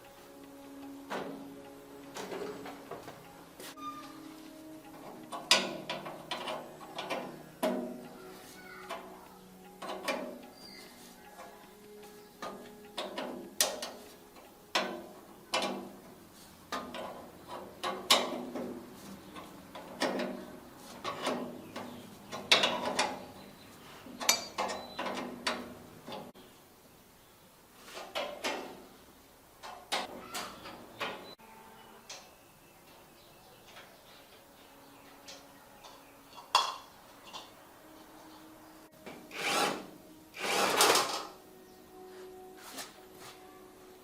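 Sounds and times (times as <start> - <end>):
metallic clanks of hand tools: 0.3 - 26.3, 35.2 - 37.6, 39.0 - 41.4.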